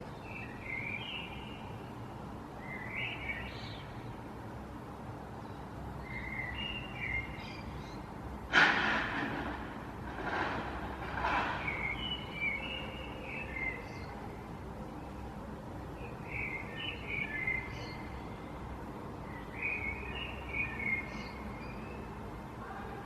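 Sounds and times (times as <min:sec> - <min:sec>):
small birds chirping and warbling: 0:02.6 - 0:04.2, 0:05.4 - 0:08.2, 0:11.1 - 0:15.3, 0:15.9 - 0:23.0
low background rumble: 0:08.4 - 0:13.1
sudden loud rushing noise: 0:08.5 - 0:12.8.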